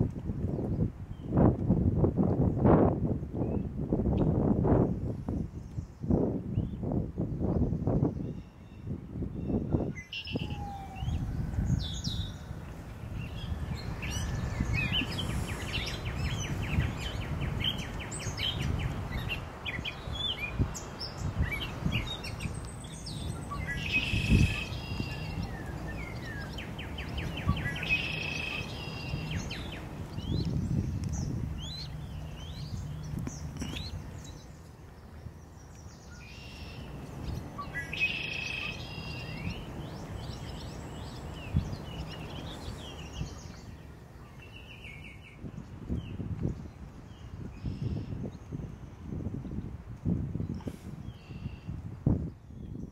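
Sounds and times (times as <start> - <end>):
small birds chirping: 7.5 - 49.8.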